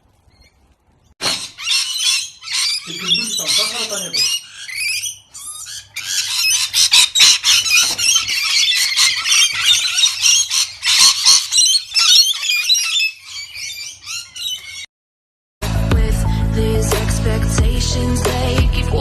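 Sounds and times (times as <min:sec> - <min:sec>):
parrot screeching and squawking: 0:01.2 - 0:14.9.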